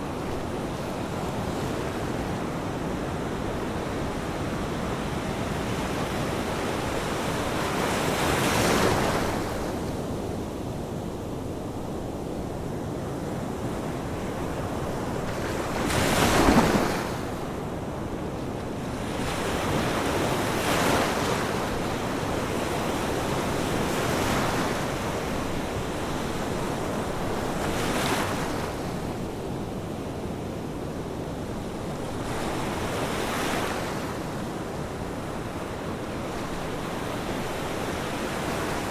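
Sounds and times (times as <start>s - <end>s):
surf wash: 13.9s - 29.4s
ocean waves breaking: 14.9s - 18.0s.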